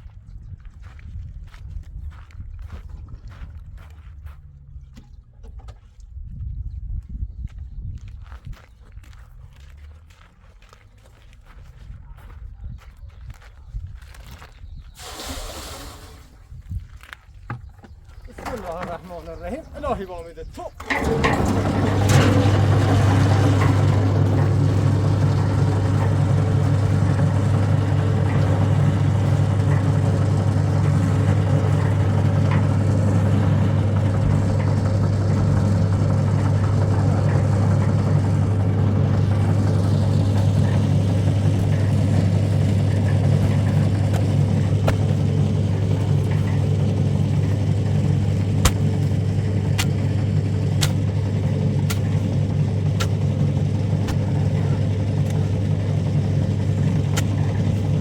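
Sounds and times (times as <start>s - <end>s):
engine humming: 17.5s - 58.0s.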